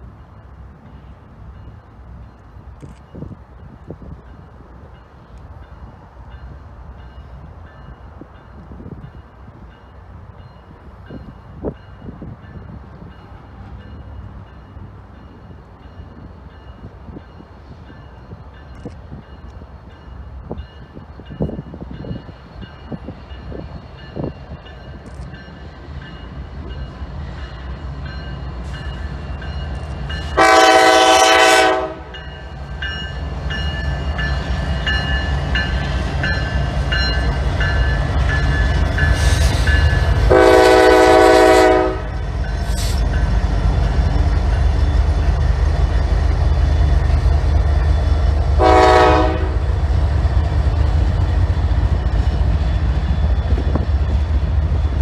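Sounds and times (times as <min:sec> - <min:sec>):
locomotive rumble: 0:10.2 - 0:55.0
locomotive air horn blasts: 0:30.2 - 0:32.2, 0:40.2 - 0:42.2, 0:48.6 - 0:49.7.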